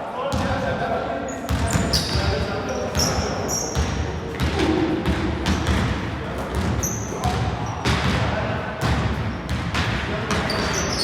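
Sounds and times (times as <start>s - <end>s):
shoe squeaks: 1.3s - 3.8s, 6.8s - 7.9s, 10.3s - 11.0s
basketball bouncing on gym floor: 1.5s - 11.0s.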